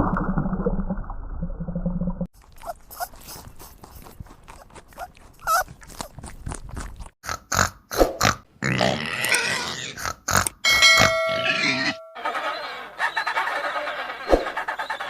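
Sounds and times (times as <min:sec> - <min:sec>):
pig grunting: 0:07.2 - 0:10.6.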